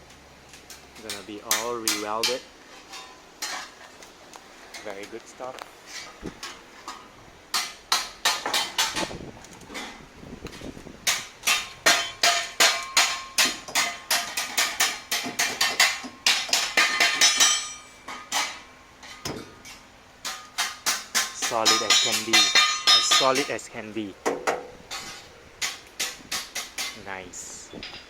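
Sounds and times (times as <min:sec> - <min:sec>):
hammer striking steel panels: 0:01.1 - 0:02.4, 0:06.4 - 0:09.2, 0:11.0 - 0:23.6, 0:24.2 - 0:27.1.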